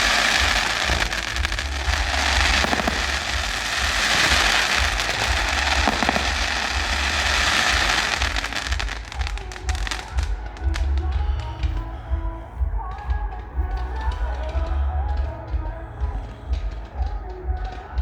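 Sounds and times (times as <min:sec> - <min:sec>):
fireworks crackling: 0:00.0 - 0:18.0.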